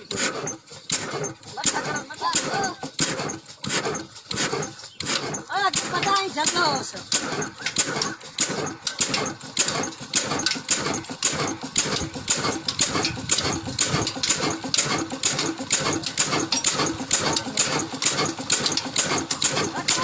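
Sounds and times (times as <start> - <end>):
antique engine running: 0.0 - 20.0.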